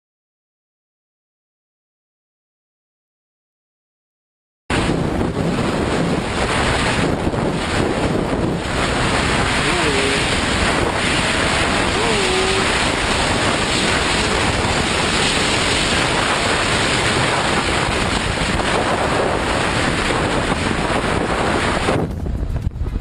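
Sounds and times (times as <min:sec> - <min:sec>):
wind buffeting microphone: 0:04.7 - 0:23.0.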